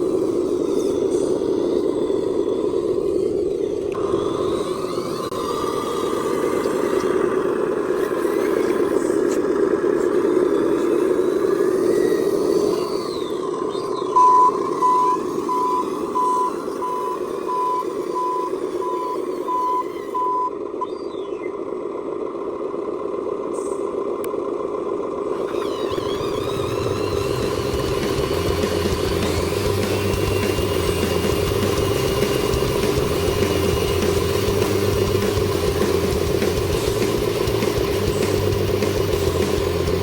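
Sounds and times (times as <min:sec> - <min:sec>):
steady hum: 0:00.0 - 0:40.0
reversing beeper beeps: 0:12.7 - 0:21.6.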